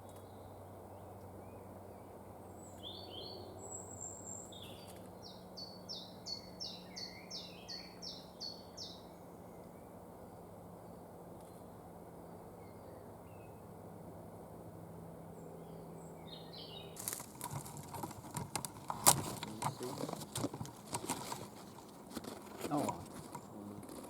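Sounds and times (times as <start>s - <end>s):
songbird chirps: 0.0s - 13.8s, 15.2s - 24.0s
close rustles: 17.0s - 24.0s.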